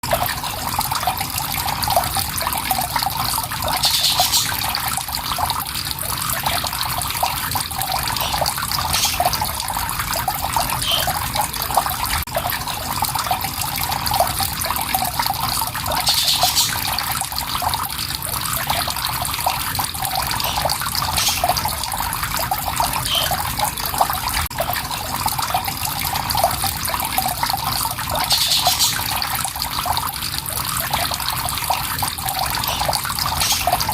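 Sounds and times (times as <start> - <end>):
water flowing and trickling: 0.0 - 33.9
high bird chirps: 3.7 - 4.6, 10.8 - 11.2, 28.2 - 29.0.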